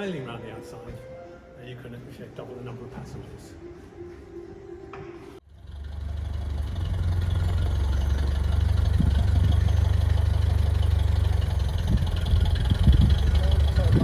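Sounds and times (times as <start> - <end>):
bus engine idling: 5.4 - 14.0.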